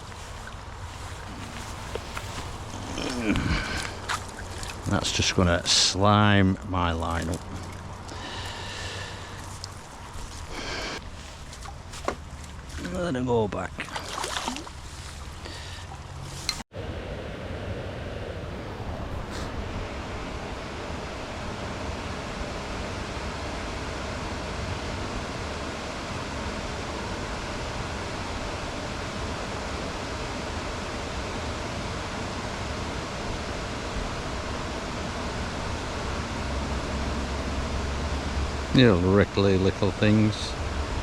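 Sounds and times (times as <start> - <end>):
river water rushing: 13.9 - 16.6.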